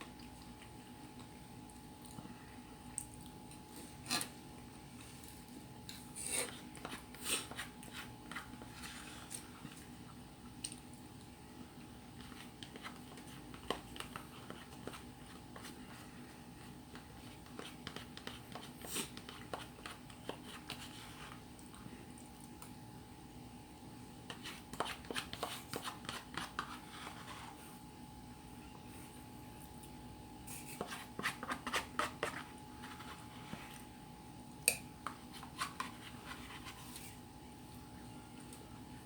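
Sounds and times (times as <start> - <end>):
chewing: 0.0 - 4.0
faint steady hum: 0.0 - 39.0
utensil scraping a bowl: 6.0 - 9.4.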